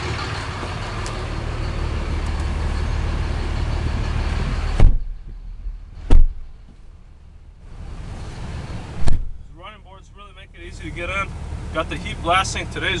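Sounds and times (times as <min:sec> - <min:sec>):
diesel engine idling: 0:00.0 - 0:13.0
truck door thumping shut: 0:04.8 - 0:05.4, 0:06.0 - 0:06.8, 0:09.0 - 0:09.5.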